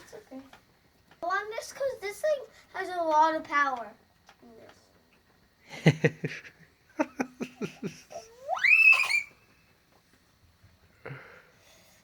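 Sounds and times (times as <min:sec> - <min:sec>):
boy laughing: 0:05.8 - 0:09.3
boy squealing: 0:08.1 - 0:09.4.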